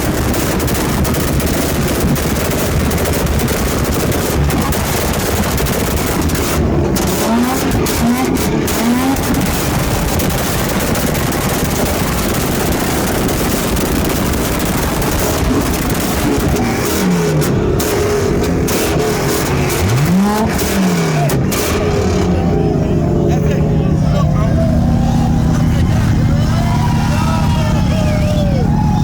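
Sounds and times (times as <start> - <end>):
car engine running hard: 0.0 - 29.0.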